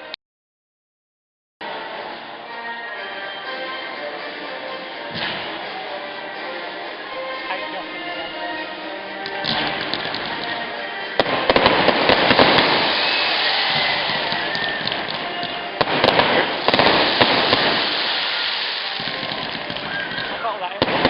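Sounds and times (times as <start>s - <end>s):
fireworks crackling and popping: 5.1s - 5.6s, 9.2s - 21.0s.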